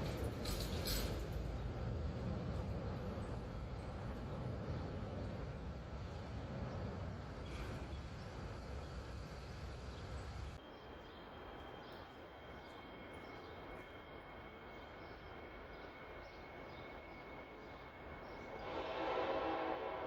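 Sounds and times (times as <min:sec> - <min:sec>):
steady high-pitched whine: 0:10.6 - 0:18.6
train horn: 0:18.5 - 0:20.0.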